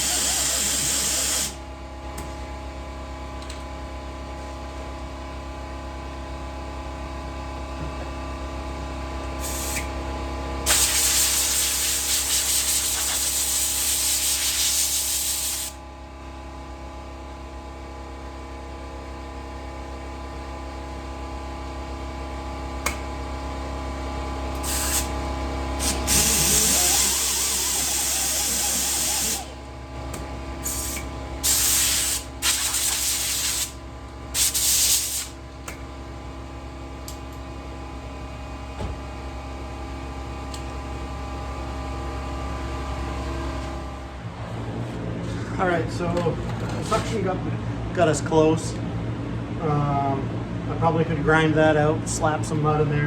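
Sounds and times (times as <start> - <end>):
compressed air hissing: 0.0 - 1.6, 9.4 - 9.9, 10.7 - 15.8, 24.6 - 29.6, 30.6 - 33.8, 34.4 - 35.4
steady hum: 0.0 - 3.4, 21.8 - 52.9.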